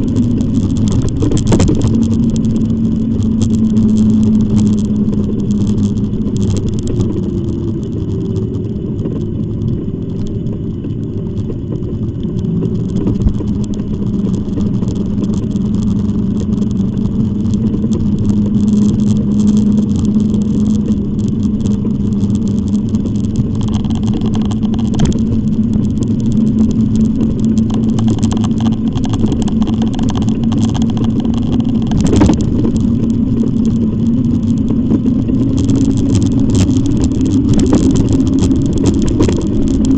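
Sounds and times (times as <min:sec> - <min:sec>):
electric bike motor hum: 0:00.0 - 0:39.9
wind and road rushing: 0:00.0 - 0:39.9.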